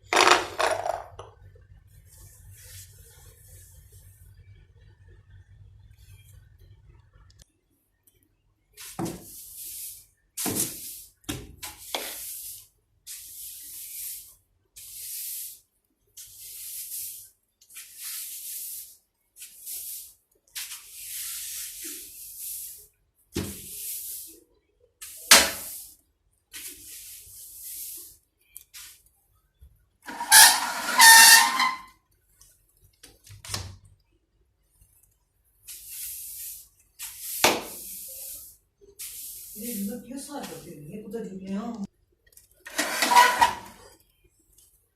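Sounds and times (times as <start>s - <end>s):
bristle brush swishing: 2.0s - 4.2s, 8.8s - 22.9s, 23.6s - 24.4s, 25.0s - 29.0s, 35.6s - 40.7s.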